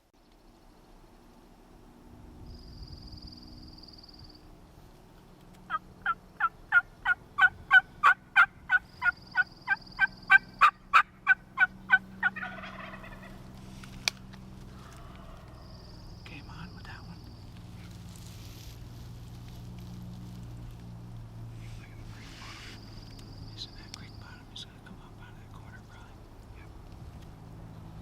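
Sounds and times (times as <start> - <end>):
wild turkey yelping: 5.7 - 13.5, 14.7 - 15.8, 21.8 - 23.2.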